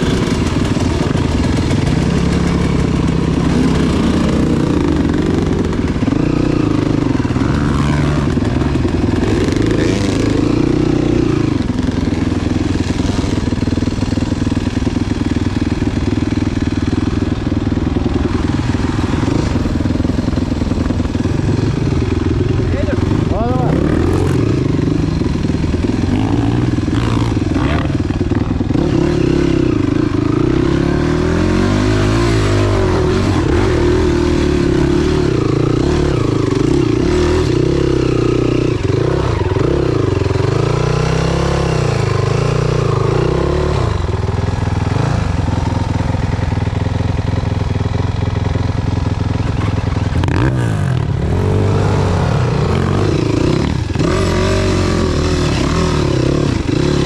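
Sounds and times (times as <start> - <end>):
motorcycle engine revving: 0.0 - 57.0
wind on microphone: 18.3 - 22.4.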